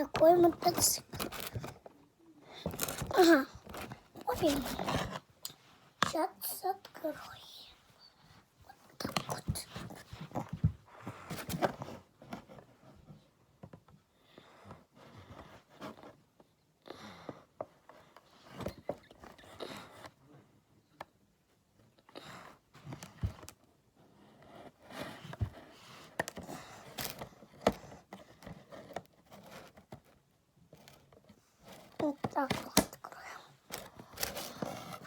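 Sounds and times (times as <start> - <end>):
packaging scraping and rustling: 0.1 - 1.9, 33.7 - 35.0.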